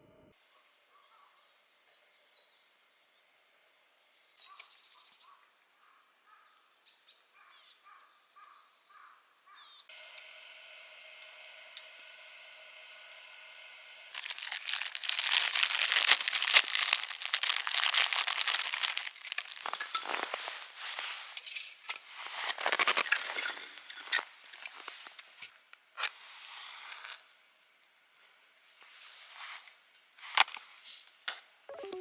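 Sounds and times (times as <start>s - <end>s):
crinkling and rustling: 14.1s - 26.2s.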